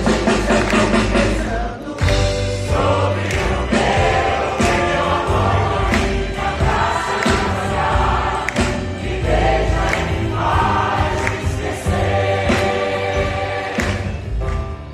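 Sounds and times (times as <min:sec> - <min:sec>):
band with heavy bass line: 0:00.0 - 0:14.7
voices singing in chorus: 0:00.2 - 0:14.4.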